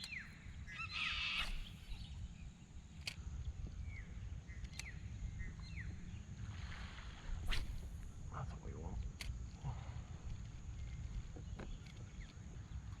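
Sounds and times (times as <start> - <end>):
birds chirping: 0.0 - 2.5
low rumble of wind: 0.0 - 13.0
sharp clicks: 1.4 - 2.1.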